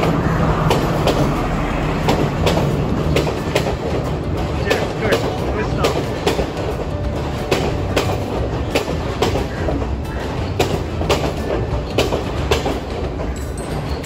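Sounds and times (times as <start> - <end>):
low constant train rumble: 0.0 - 14.0
train wheels clacking over rail joints: 0.0 - 14.0.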